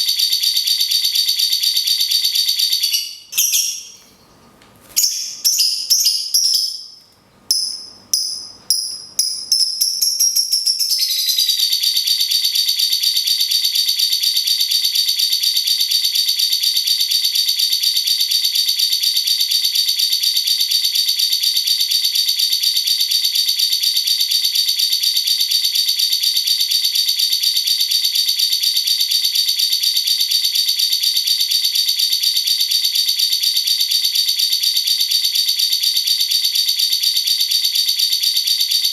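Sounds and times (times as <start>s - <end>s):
cage bird calling and trilling: 2.7s - 4.0s, 5.0s - 11.7s.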